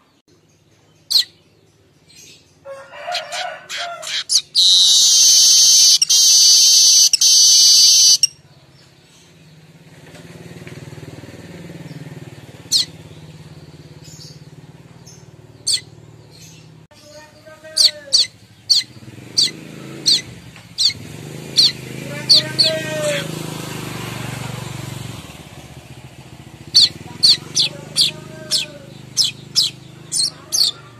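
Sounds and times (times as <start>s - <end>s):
bird buzzy chatter: 3.7s - 8.3s, 15.6s - 23.3s, 26.6s - 30.9s.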